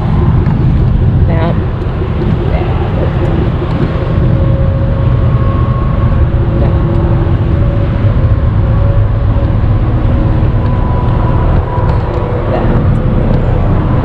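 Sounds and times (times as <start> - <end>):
faint steady whine: 0.0 - 14.0
truck engine and road drone: 0.0 - 14.0.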